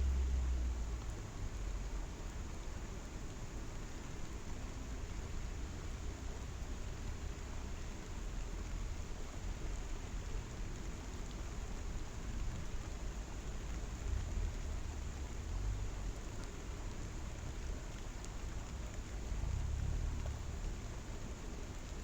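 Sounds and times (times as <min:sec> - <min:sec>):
rain: 0:00.0 - 0:22.0.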